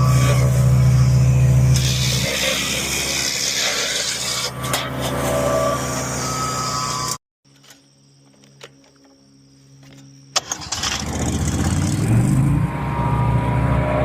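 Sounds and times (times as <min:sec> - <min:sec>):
wood chipper engine running: 0:00.0 - 0:07.1, 0:10.4 - 0:14.0.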